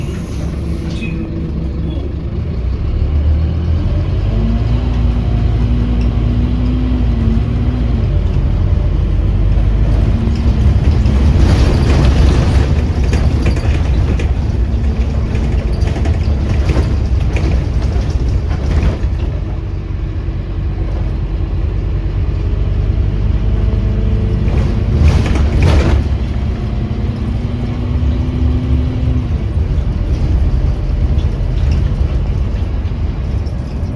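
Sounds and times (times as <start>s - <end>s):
bus diesel engine running: 0.0s - 33.9s
rattles: 9.7s - 19.9s, 24.2s - 33.9s.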